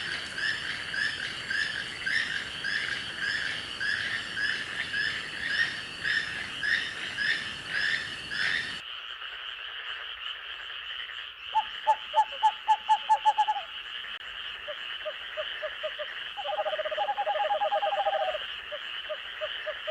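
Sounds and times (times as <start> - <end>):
high insect drone: 0.0 - 8.8
frogs croaking: 0.0 - 19.9.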